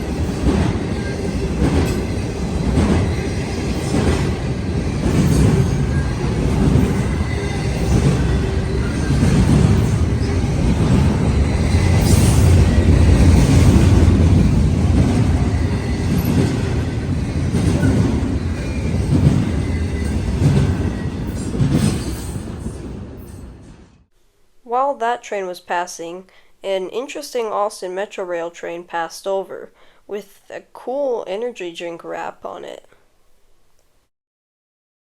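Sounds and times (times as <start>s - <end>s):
train wheels clicking: 0.0s - 23.3s
freight train rumbling on rails: 0.0s - 24.0s.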